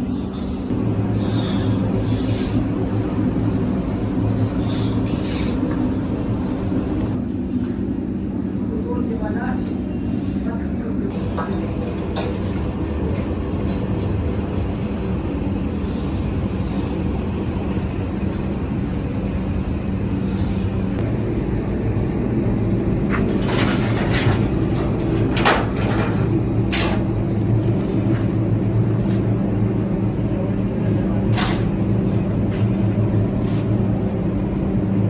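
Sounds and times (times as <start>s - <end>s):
machine engine humming: 0.0s - 8.8s, 10.9s - 35.0s
sharp knocks and clatters: 23.1s - 27.1s.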